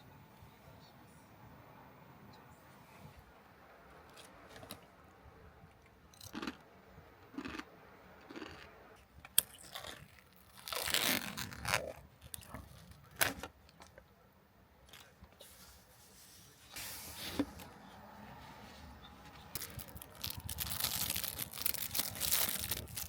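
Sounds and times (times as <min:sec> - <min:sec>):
rustling and scraping handling: 0:14.9 - 0:23.0.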